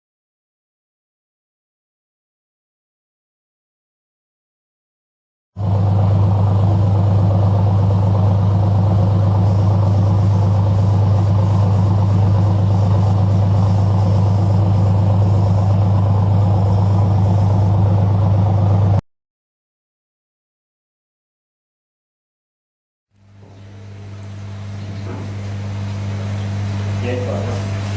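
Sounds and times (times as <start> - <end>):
diesel engine running steadily: 5.6 - 19.0.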